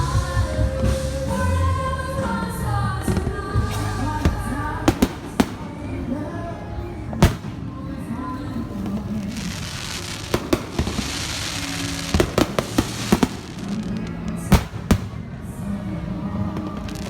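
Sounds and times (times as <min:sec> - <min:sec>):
background music: 0:00.0 - 0:17.0
fireworks crackling: 0:00.0 - 0:17.0
fireworks bangs: 0:02.2 - 0:06.4, 0:07.0 - 0:15.7.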